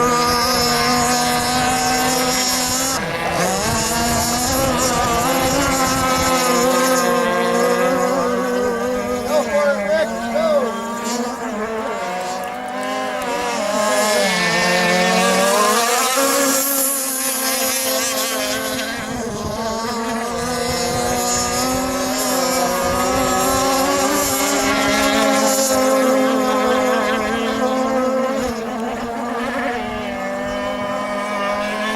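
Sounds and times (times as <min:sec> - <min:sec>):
model boat engines buzzing: 0:00.0 - 0:31.9.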